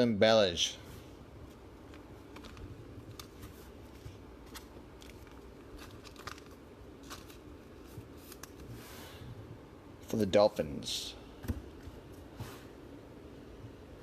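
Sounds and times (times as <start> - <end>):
trading cards rustling: 1.4 - 8.8.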